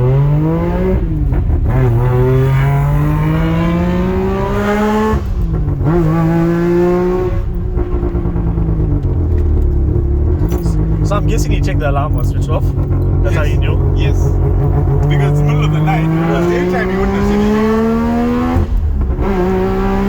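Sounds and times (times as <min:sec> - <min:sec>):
rotary engine accelerating: 0:00.0 - 0:20.0.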